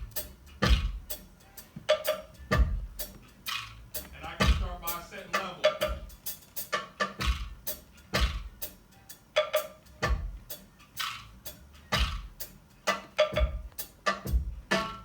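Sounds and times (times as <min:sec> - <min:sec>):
kick drum: 0:00.0 - 0:01.0, 0:02.5 - 0:03.0, 0:04.4 - 0:04.9, 0:08.2 - 0:08.5, 0:13.4 - 0:13.7, 0:14.3 - 0:14.7
snare drum: 0:00.0 - 0:01.2, 0:01.9 - 0:08.7, 0:11.9 - 0:15.0
hi-hat: 0:00.0 - 0:15.0.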